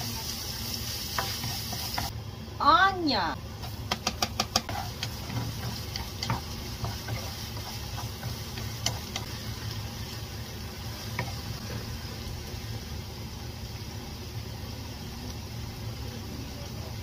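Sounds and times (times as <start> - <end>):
onion and garlic sizzling in oil: 0.0 - 17.0
wooden spatula scraping a pan: 3.6 - 9.5.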